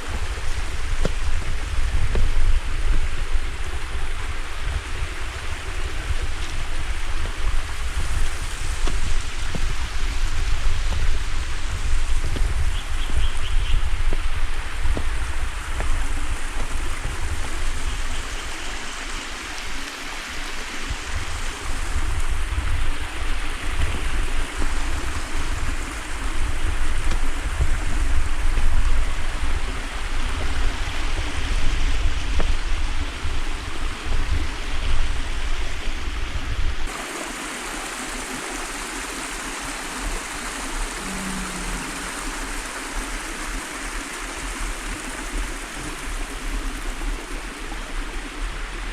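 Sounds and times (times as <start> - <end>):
creek water rushing: 0.0 - 48.9
low uneven rumble: 39.2 - 48.2.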